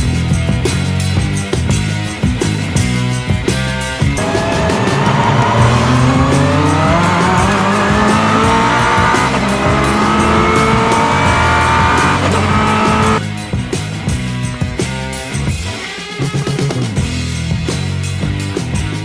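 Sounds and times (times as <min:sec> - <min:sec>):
car engine accelerating: 0:04.2 - 0:13.2.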